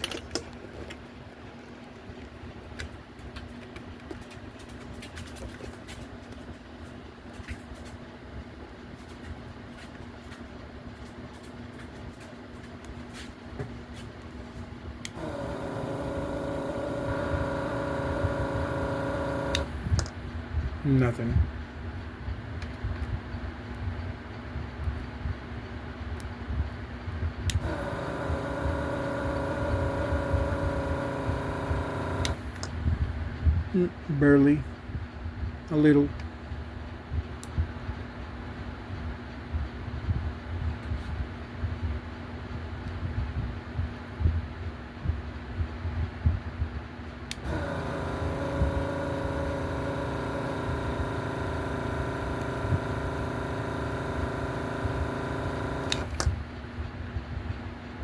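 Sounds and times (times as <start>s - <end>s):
vacuum pump humming: 14.9s - 20.4s, 27.4s - 33.2s, 47.3s - 56.7s
vacuum pump switch click: 27.5s - 32.8s, 47.3s - 56.4s.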